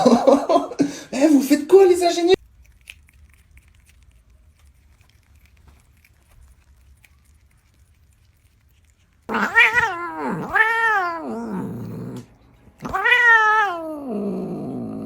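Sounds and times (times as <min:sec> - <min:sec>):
rustling: 0:02.4 - 0:10.6
cat yowling: 0:09.3 - 0:12.2, 0:12.8 - 0:15.0.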